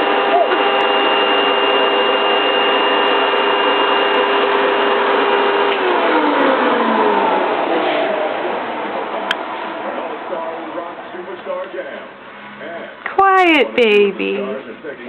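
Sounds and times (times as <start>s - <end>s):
vacuum cleaner motor running: 0.0s - 10.7s.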